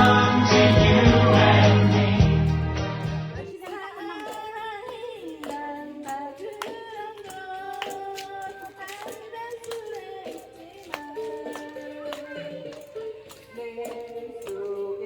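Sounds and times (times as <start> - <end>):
loud music: 0.0 - 3.5
person singing slow melody: 0.0 - 3.7
hand claps: 0.0 - 14.9.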